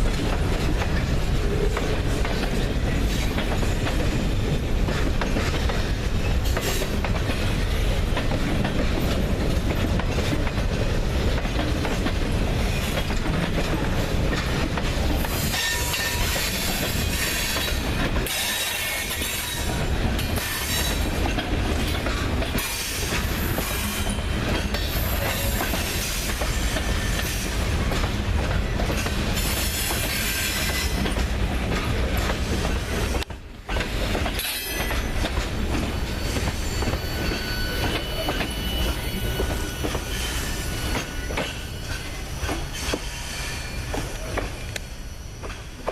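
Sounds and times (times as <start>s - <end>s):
freight train cars rolling: 0.0s - 45.9s
high wheel squeal: 35.8s - 45.7s.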